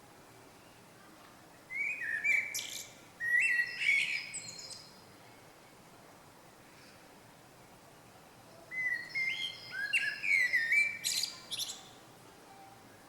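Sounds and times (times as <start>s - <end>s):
songbird singing: 0.5s - 5.8s, 8.4s - 13.0s.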